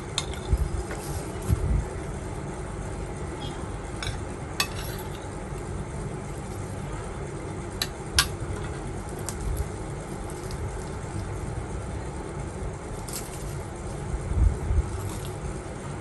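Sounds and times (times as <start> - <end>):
low background rumble: 0.0 - 16.0
tableware clinking: 4.0 - 5.3.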